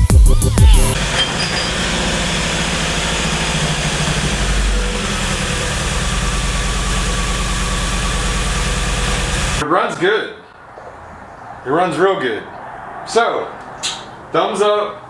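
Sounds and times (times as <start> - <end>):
engine idling: 0.0 - 9.6.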